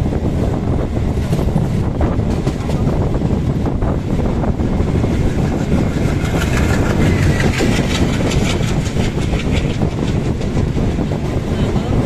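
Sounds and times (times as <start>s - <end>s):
train wheels rumbling on rail: 0.0s - 12.0s
rapid clicking: 5.3s - 10.8s.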